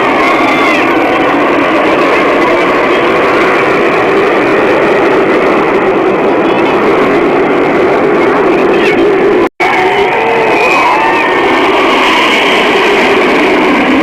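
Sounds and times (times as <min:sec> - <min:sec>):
fighter jet engine roar: 0:00.0 - 0:14.0.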